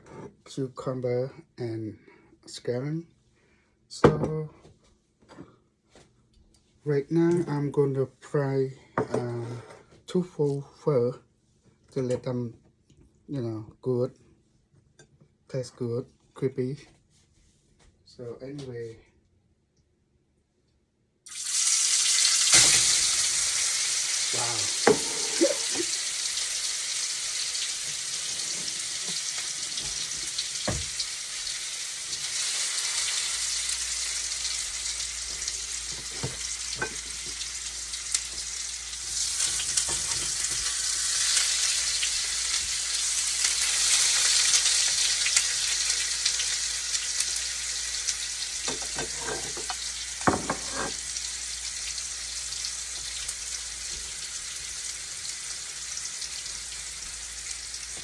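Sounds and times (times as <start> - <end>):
tofu sizzling in oil: 21.3 - 58.0.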